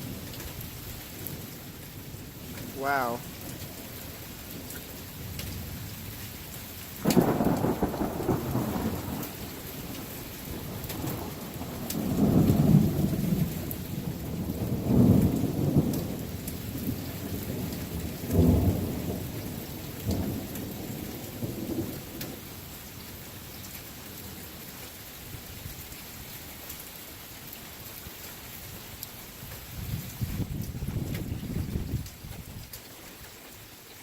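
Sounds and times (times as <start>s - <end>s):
rain hissing: 0.0s - 34.0s
thunder clap and rumbles: 7.0s - 22.4s, 29.8s - 32.6s.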